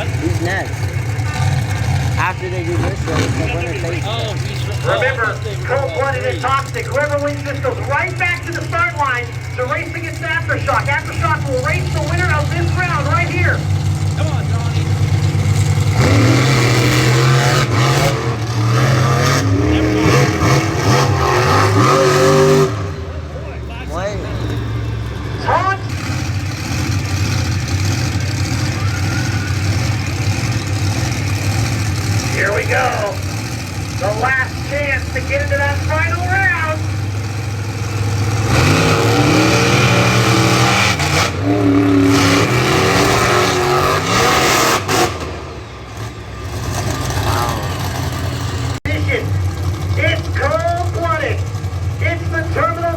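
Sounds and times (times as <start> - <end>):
monster truck engines revving: 0.0 - 52.9.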